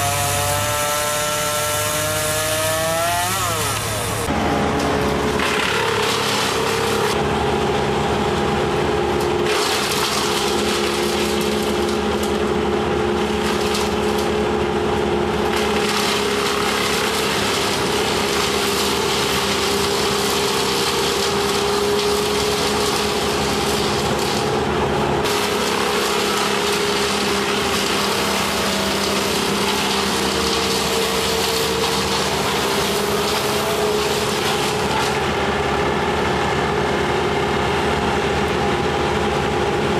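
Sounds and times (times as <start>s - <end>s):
chainsaw cutting branch: 0.0s - 7.2s, 9.4s - 12.4s, 15.4s - 24.6s, 25.2s - 35.3s.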